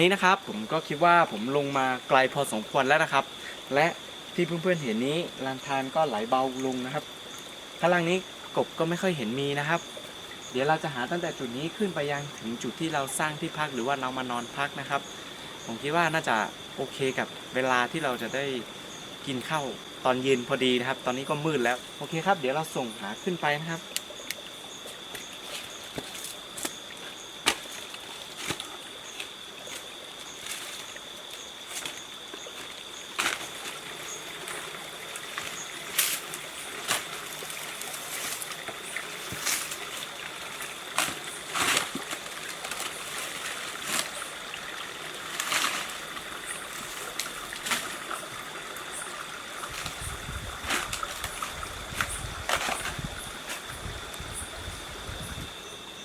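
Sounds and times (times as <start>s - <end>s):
insect trill: 0.0s - 56.0s
steps splashing through stream: 24.3s - 54.2s
footfalls clicking on stones: 27.4s - 30.8s, 40.9s - 44.2s.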